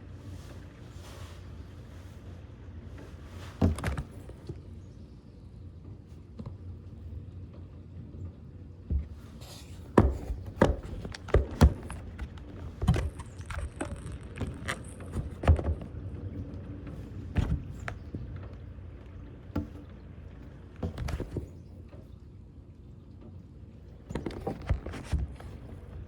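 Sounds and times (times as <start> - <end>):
irregular knocks and thumps: 8.9 - 16.2, 17.0 - 20.1, 20.8 - 21.6.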